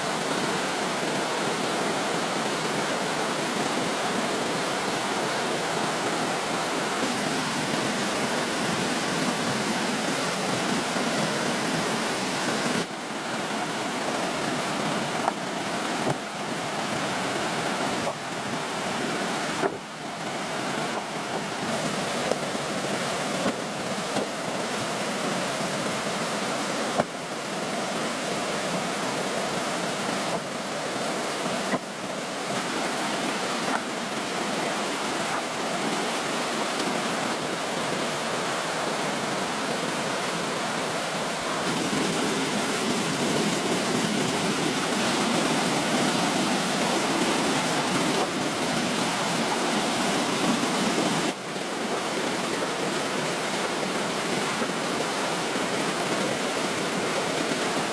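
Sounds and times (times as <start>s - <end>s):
water rushing: 0.0s - 57.9s.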